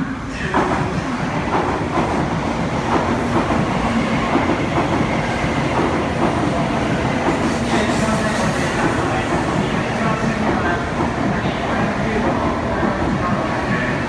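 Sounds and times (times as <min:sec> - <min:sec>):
train wheels rushing on rail: 0:00.0 - 0:14.0.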